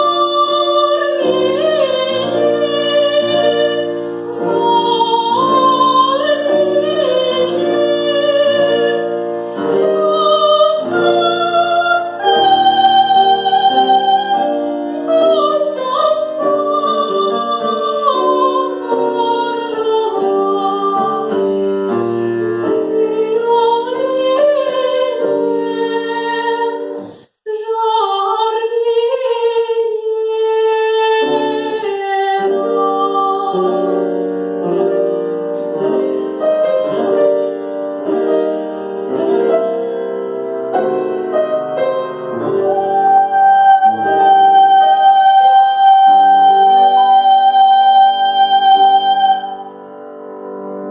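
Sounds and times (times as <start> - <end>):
woman singing operatically: 0.0 - 21.4, 22.4 - 34.0, 42.6 - 49.7
piano accompaniment: 0.0 - 27.3, 27.9 - 50.9.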